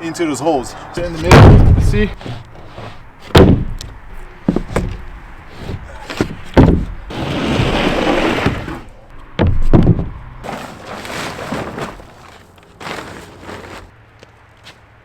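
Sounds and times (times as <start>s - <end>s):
wooden thumps: 1.0s - 13.2s
wooden sheet scraping: 1.0s - 14.0s.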